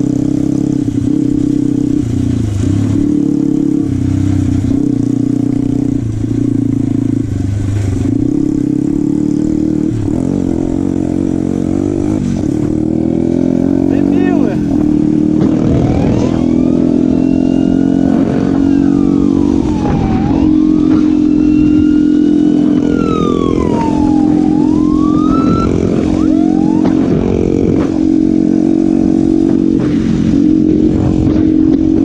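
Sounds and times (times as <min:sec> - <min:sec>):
motorcycle engine running: 0:00.0 - 0:32.0
siren wailing: 0:15.4 - 0:28.0.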